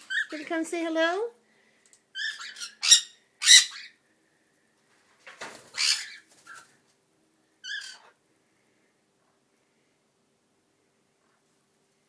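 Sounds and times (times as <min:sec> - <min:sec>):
cockatiels squawking: 0:02.2 - 0:04.0, 0:05.7 - 0:06.6, 0:07.6 - 0:08.2.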